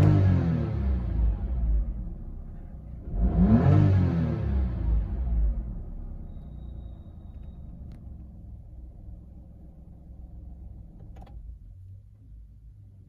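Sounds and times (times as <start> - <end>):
car engine idling: 0.0 - 3.6, 4.5 - 13.0
faint high beep: 6.0 - 7.9.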